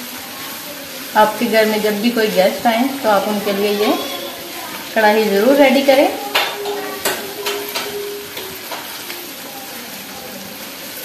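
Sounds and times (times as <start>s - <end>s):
chicken sizzling in a pan: 0.0s - 11.0s
spatula scraping pan: 3.0s - 9.4s.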